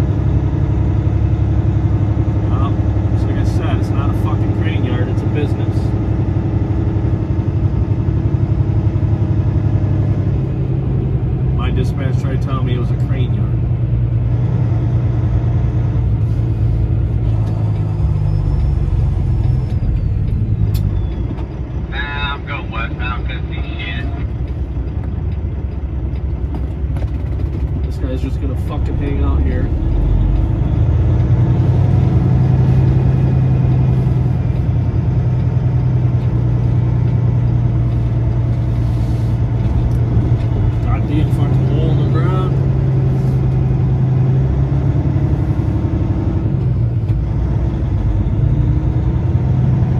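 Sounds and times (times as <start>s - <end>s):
truck diesel engine rumble: 0.0s - 49.9s.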